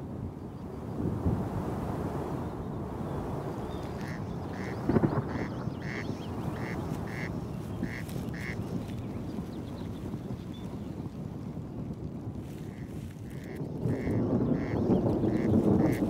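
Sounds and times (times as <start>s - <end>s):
wind noise: 0.0s - 16.0s
corncrake calling: 3.8s - 9.3s.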